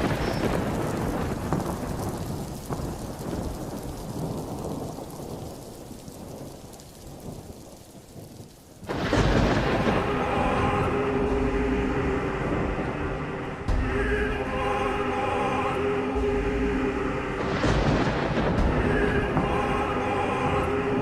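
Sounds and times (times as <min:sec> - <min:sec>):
rain: 0:00.0 - 0:21.0
thunder: 0:00.0 - 0:21.0
music: 0:08.9 - 0:21.0.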